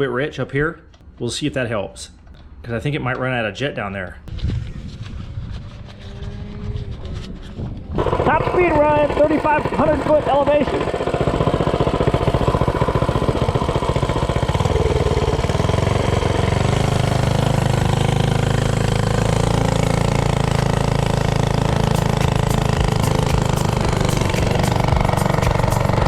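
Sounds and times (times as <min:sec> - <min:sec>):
minibike engine at full throttle: 0:04.3 - 0:26.0.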